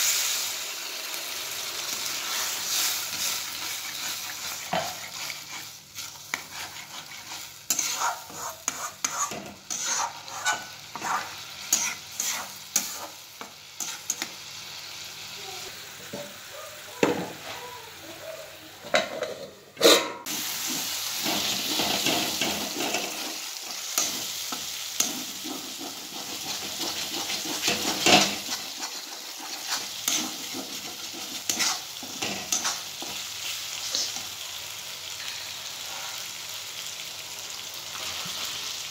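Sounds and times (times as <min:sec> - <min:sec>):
curry sizzling in oil: 0:00.0 - 0:19.4, 0:20.2 - 0:38.9
metal spatula scraping a pan: 0:02.1 - 0:13.2, 0:13.8 - 0:14.3, 0:18.9 - 0:34.2.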